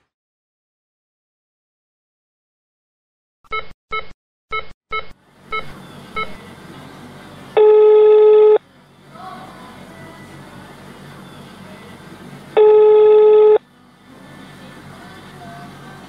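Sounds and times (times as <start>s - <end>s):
phone line hiss: 7.6s - 8.6s, 12.6s - 13.6s
phone ringback tone: 7.6s - 8.6s, 12.6s - 13.6s
short phone beeps: 7.6s - 8.6s, 12.6s - 13.6s.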